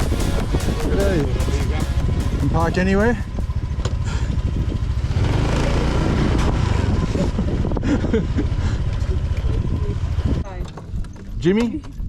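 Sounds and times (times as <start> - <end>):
rushing wind or road noise: 0.0 - 12.0
motor scooter engine putter: 3.6 - 4.4.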